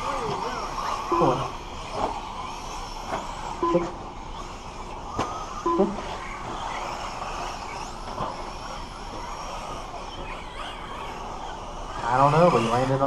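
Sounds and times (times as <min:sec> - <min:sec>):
faint high motor whine: 0:00.0 - 0:13.0
rc trucks motor and tyre noise: 0:00.0 - 0:13.0.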